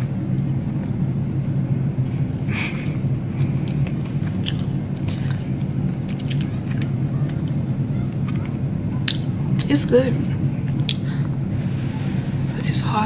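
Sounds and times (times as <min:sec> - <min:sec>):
steady low hum: 0:00.0 - 0:13.0
person chewing: 0:03.4 - 0:09.7, 0:10.6 - 0:11.3
mouth clicks and smacks: 0:10.7 - 0:11.1.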